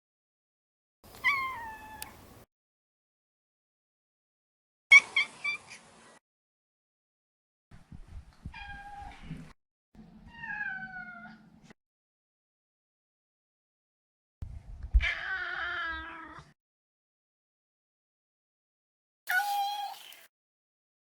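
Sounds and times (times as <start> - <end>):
cat chirping: 1.2 - 2.1
cat meowing: 1.2 - 2.1.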